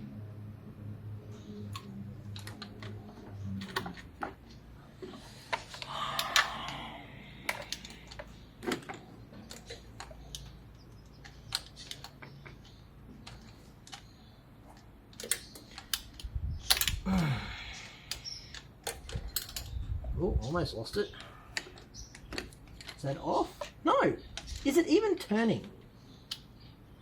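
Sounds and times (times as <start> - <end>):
spanner clicking on bolt: 7.4 - 14.1, 15.1 - 17.1, 18.1 - 19.8.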